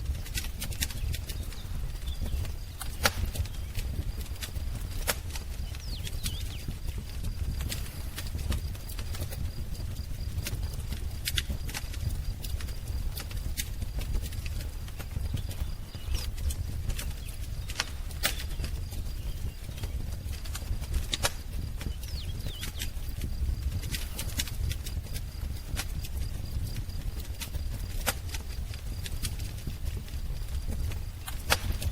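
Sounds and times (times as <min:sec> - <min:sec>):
wood fire crackling and popping: 0:00.0 - 0:31.9
faint bird chirps: 0:05.6 - 0:07.0, 0:21.0 - 0:23.2.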